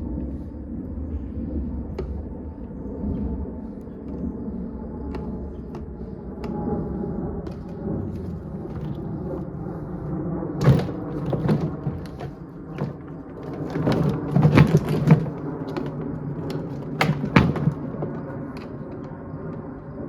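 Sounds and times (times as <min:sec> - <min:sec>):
steady low rumble: 0:00.0 - 0:20.0
plastic knocks and bangs: 0:07.5 - 0:09.5, 0:10.6 - 0:18.7.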